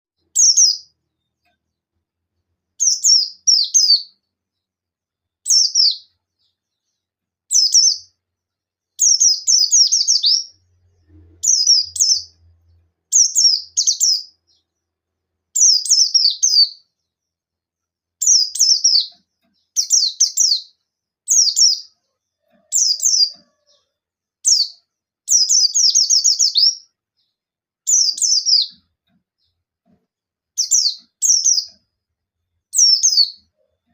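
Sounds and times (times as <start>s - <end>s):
bird singing high chirps: 0.2s - 1.5s, 2.8s - 4.2s, 5.4s - 8.2s, 9.0s - 14.8s, 15.5s - 17.2s, 18.2s - 29.6s, 30.6s - 31.8s, 32.7s - 33.9s.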